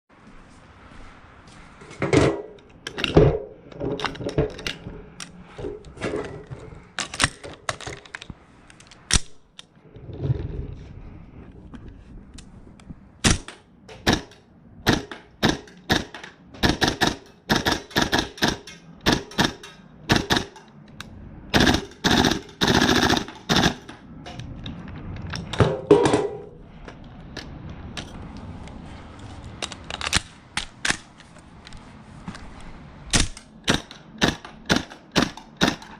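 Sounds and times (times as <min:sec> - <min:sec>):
airsoft rifle shots: 0:13.2 - 0:20.6, 0:21.5 - 0:23.9, 0:33.1 - 0:35.9.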